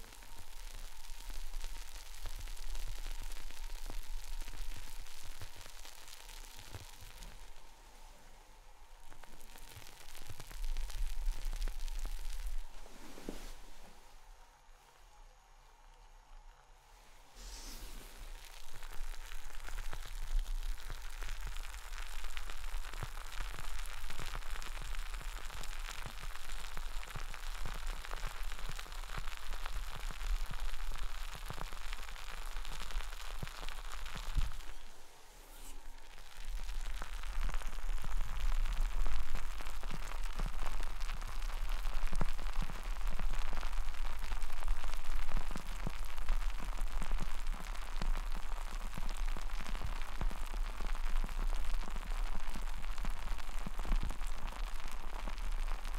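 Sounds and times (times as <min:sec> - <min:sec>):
beer bubbles fizzing: 0:09.0 - 0:13.3, 0:17.4 - 0:34.9, 0:35.8 - 0:55.9.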